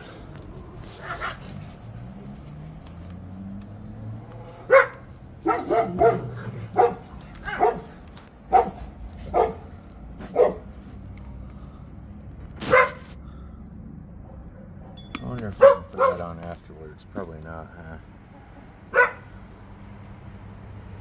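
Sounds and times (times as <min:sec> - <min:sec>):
dog barking: 0:01.0 - 0:01.5, 0:04.7 - 0:10.8, 0:12.6 - 0:13.1, 0:14.2 - 0:16.4, 0:18.9 - 0:19.3.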